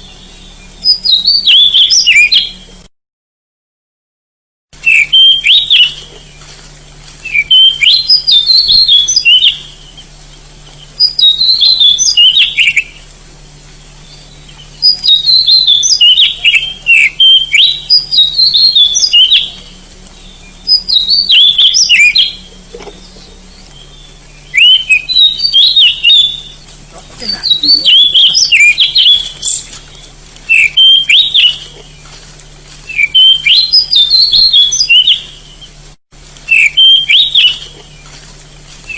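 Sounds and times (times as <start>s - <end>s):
bird singing whistled phrases: 0.0s - 2.7s, 4.8s - 6.4s, 7.2s - 10.1s, 10.8s - 13.0s, 14.0s - 32.0s, 32.9s - 35.8s, 36.5s - 38.0s
faint steady low hum: 0.0s - 2.9s, 4.8s - 38.9s.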